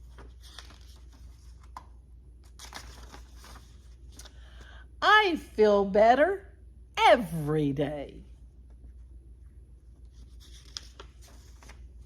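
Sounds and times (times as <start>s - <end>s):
paper pages rustling: 0.0s - 4.7s, 9.8s - 12.0s.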